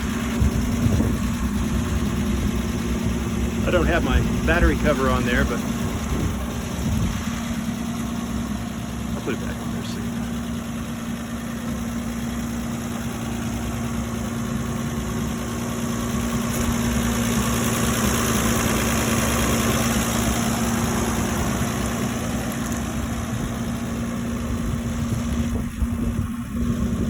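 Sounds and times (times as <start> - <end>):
truck engine idling: 0.0 - 27.0.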